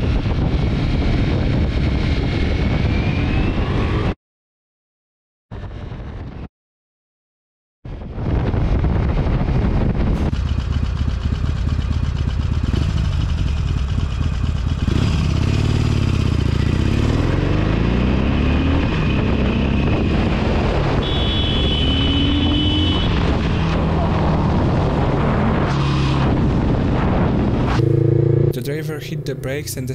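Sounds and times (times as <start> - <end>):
road and wind noise: 0.0 - 4.2, 5.5 - 6.5, 7.8 - 29.9
motorcycle engine revving: 10.2 - 29.9
steady high tone: 27.7 - 29.9.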